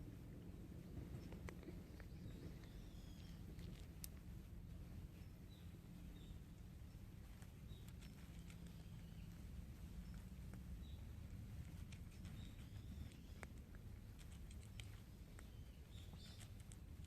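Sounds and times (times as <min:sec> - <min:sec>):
steady low rumble: 0:00.0 - 0:17.0
faint high chirps: 0:01.1 - 0:03.8.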